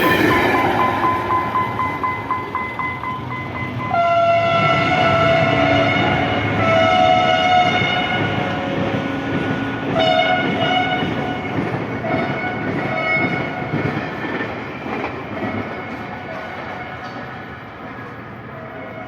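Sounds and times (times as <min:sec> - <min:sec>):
train rumble: 0:00.0 - 0:19.0
locomotive horn blasts: 0:03.9 - 0:13.6.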